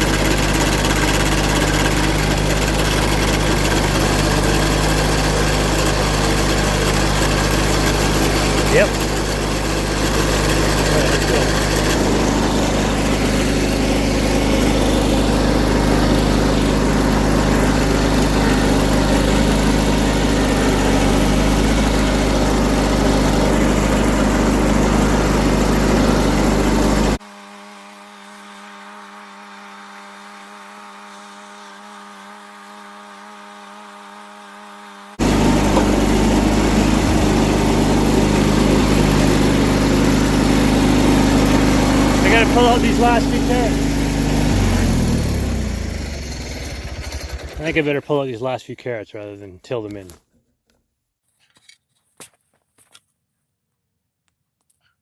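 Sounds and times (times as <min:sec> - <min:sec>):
garden tractor engine running: 0:00.0 - 0:27.2, 0:34.5 - 0:48.6.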